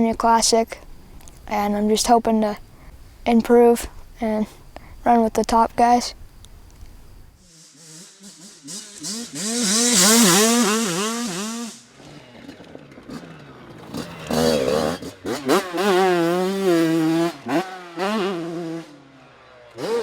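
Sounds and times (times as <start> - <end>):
dirt bike engine revving: 7.4 - 20.0.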